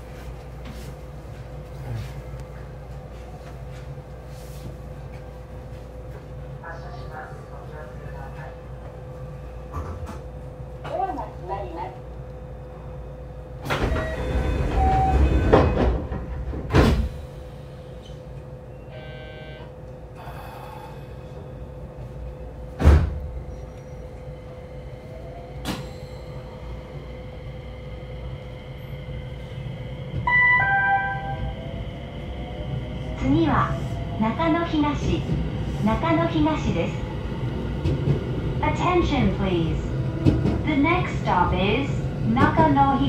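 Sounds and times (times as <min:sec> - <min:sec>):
clunks and knocks: 0:13.6 - 0:17.1
sliding doors thudding shut: 0:13.6 - 0:17.1, 0:22.8 - 0:23.3.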